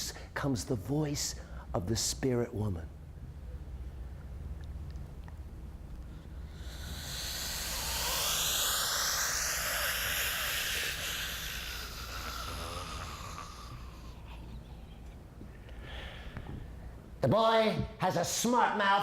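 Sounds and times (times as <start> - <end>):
person making breathy hissing voice: 6.1 - 15.0.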